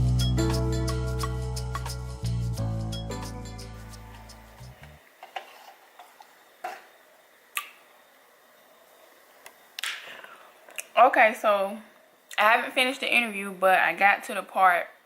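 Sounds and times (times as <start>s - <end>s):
music: 0.0s - 5.0s.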